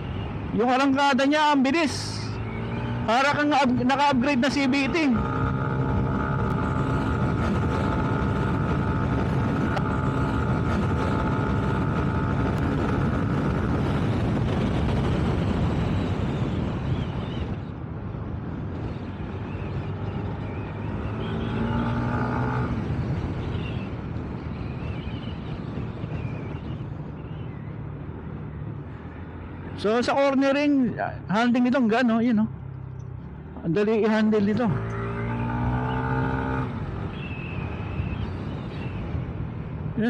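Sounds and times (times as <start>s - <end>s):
wind on microphone: 5.2s - 21.0s.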